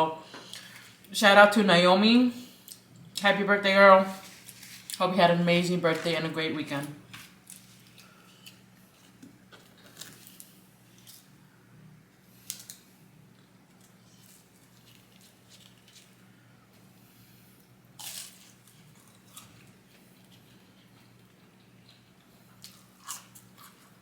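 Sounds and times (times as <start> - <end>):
steady low hum: 0.0 - 24.0
chewing and crunching: 7.2 - 11.4, 12.4 - 16.3, 17.6 - 24.0.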